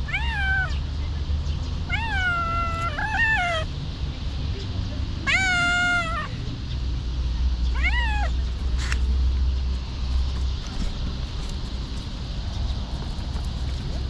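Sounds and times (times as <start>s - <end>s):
cat meowing: 0.0s - 0.8s, 1.9s - 3.7s, 5.2s - 6.3s, 7.7s - 8.4s.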